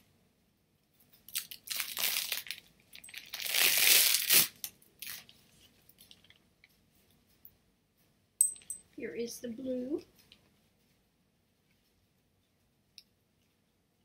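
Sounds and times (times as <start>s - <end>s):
crinkling handling noise: 1.0s - 7.4s.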